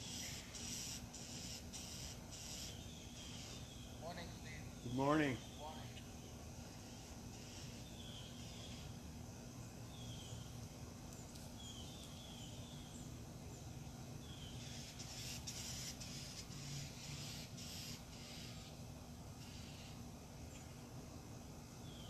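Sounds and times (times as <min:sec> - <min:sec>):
birds whistling: 0:00.0 - 0:09.0, 0:14.2 - 0:18.8
rustling hiss: 0:00.0 - 0:22.0.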